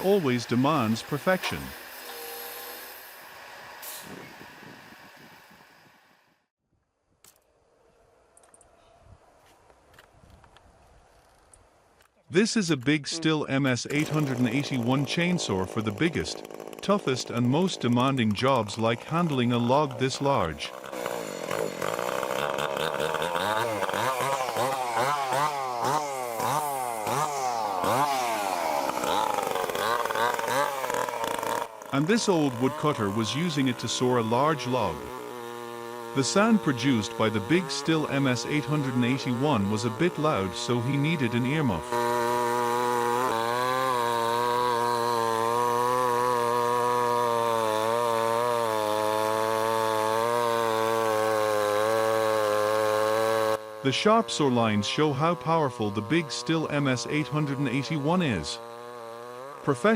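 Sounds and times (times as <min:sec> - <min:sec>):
chainsaw cutting log: 0:00.0 - 0:06.2, 0:13.6 - 0:59.9.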